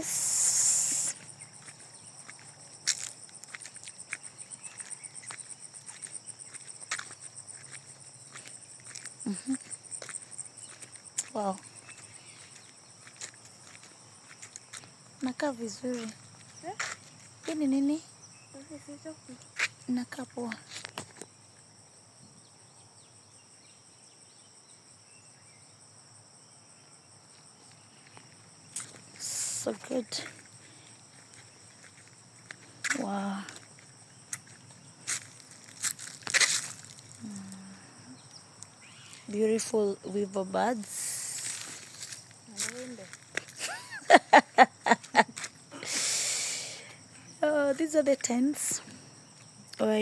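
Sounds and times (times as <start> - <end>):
footsteps on a path: 0.0 - 17.8, 19.4 - 21.4, 27.3 - 40.1, 40.7 - 49.7
crickets chirring: 0.0 - 50.0
insect chorus trilling: 0.0 - 50.0
faint bird chirps: 37.4 - 39.3.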